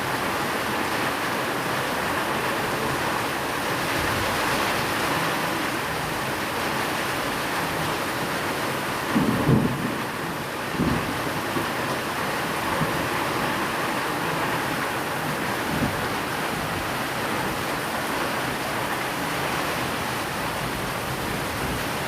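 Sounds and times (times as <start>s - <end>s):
steady rain: 0.0s - 22.0s
low thunder rumble: 9.1s - 11.4s.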